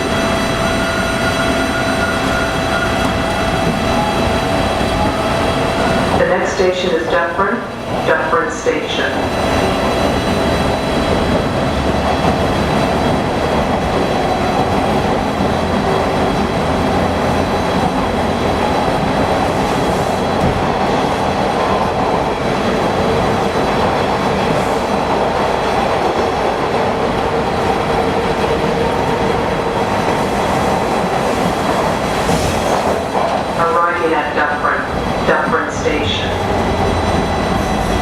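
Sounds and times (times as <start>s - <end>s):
steel wheels rumbling on rail: 0.0s - 38.0s
wheels clickety-clack: 9.5s - 29.3s, 30.0s - 33.5s.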